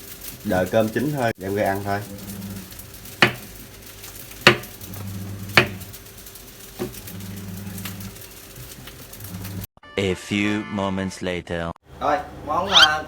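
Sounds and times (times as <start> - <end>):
rice sizzling faintly: 0.0 - 9.7.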